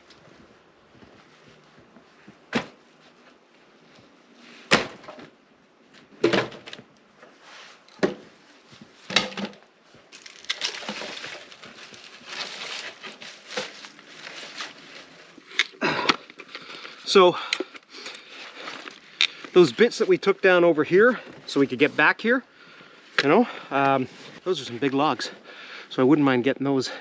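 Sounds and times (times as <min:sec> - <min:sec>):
crunching and rustling: 0:06.8 - 0:20.2
dead wood snapping: 0:10.2 - 0:11.2.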